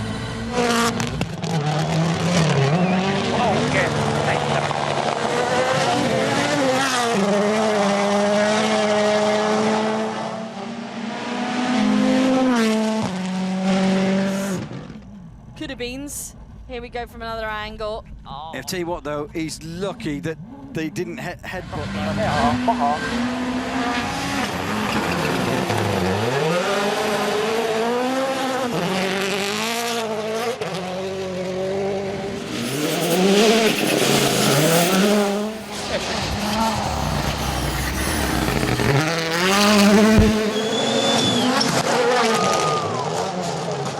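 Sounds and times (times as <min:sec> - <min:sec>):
rally car engine at high revs: 0:00.0 - 0:15.4, 0:20.4 - 0:43.9
tyre noise: 0:32.3 - 0:41.5.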